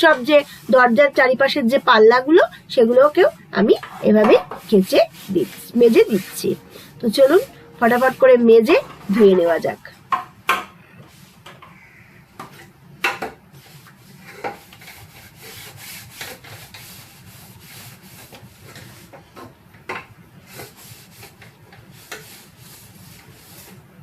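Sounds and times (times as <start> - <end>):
scrubbing pad rubbing: 0.0 - 9.8, 13.6 - 19.3, 20.4 - 23.9.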